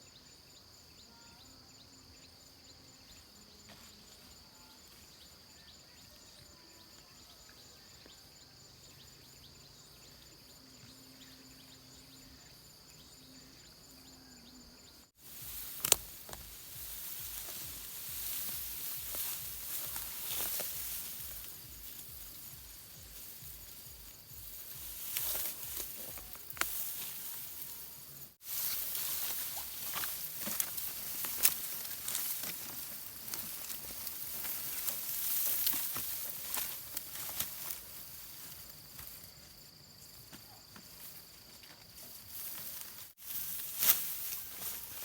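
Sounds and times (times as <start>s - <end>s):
faint steady high tone: 0.8s - 3.5s
dry stalks rustling and crackling: 15.1s - 45.0s.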